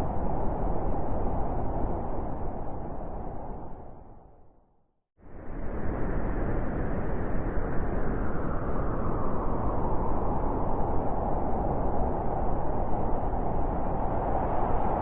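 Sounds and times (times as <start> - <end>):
wind blowing: 5.6 - 15.0.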